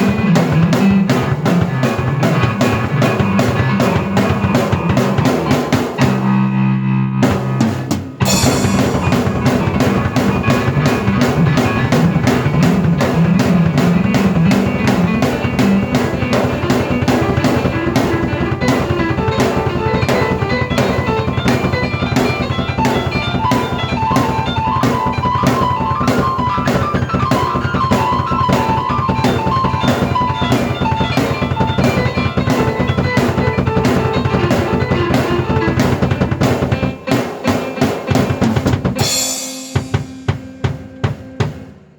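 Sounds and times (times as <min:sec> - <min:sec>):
drum kit beat: 0:00.0 - 0:06.6, 0:07.2 - 0:41.9
keyboard melody: 0:00.0 - 0:41.8
cymbal crash: 0:07.7 - 0:12.9, 0:39.0 - 0:40.8.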